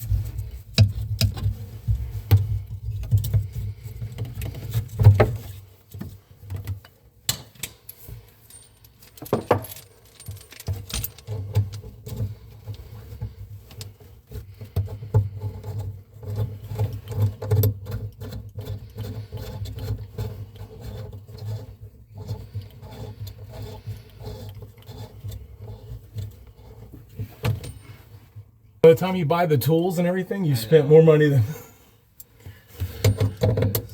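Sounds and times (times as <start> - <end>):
metal tools clinking and rattling: 7.3 - 11.8, 27.5 - 28.2.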